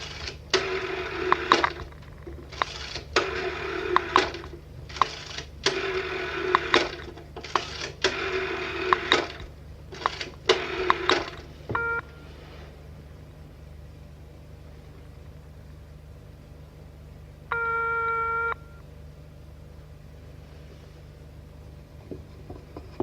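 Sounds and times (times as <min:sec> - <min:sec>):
rotary dial whirring and clicking: 0:00.0 - 0:12.2
low hum: 0:08.2 - 0:23.0
brief electronic tone: 0:11.8 - 0:12.5, 0:17.5 - 0:18.9.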